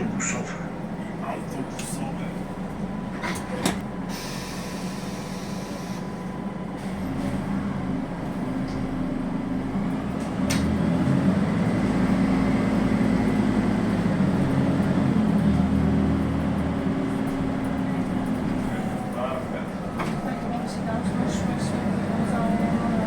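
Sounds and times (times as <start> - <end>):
bus engine running: 0.0 - 23.0.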